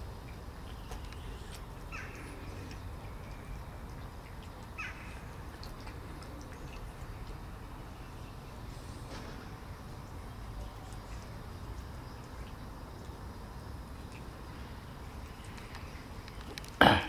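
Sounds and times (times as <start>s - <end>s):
cat chewing food: 0.2s - 7.5s.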